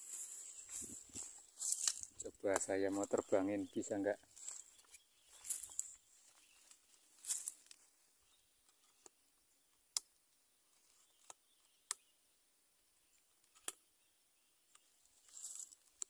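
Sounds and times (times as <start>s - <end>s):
rustle: 4.3s - 8.0s, 15.2s - 16.0s
sharp clicks and snaps: 9.9s - 10.2s, 13.4s - 13.8s.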